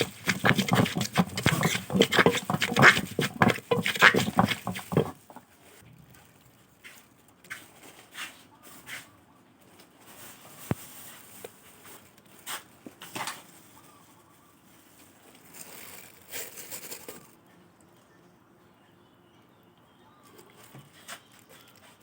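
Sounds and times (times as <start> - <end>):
food preparation knocks and taps: 0.0 - 5.4.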